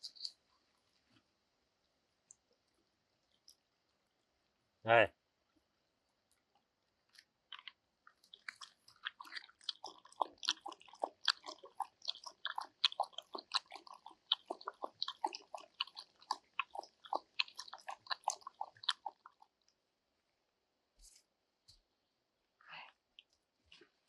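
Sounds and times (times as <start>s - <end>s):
chewing and crunching: 0.0s - 0.4s, 2.3s - 4.1s, 6.2s - 19.8s.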